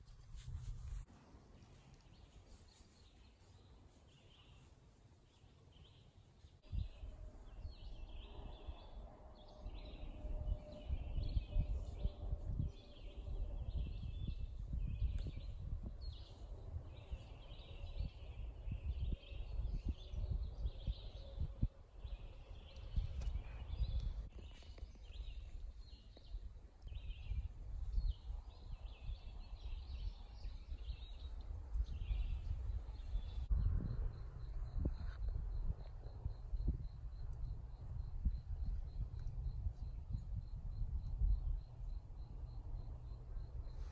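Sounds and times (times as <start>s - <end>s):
low microphone rumble: 31.8s - 43.7s.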